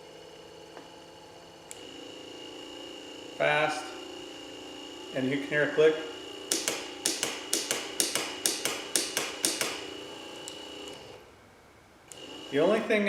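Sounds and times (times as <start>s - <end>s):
wiper motor whine: 0.0s - 11.3s, 12.1s - 13.0s
even clicking: 6.5s - 9.8s.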